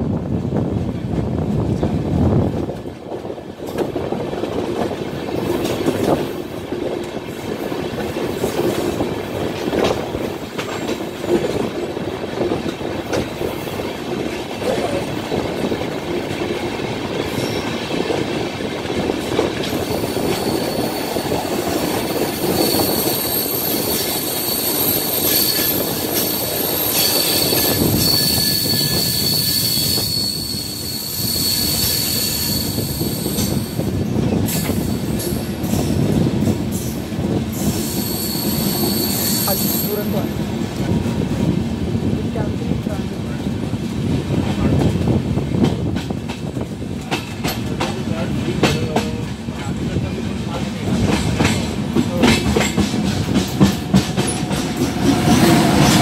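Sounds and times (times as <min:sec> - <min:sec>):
train wheels rumbling on rails: 0:00.0 - 0:56.0
high-pitched wheel squeal: 0:19.8 - 0:33.8, 0:37.8 - 0:40.0.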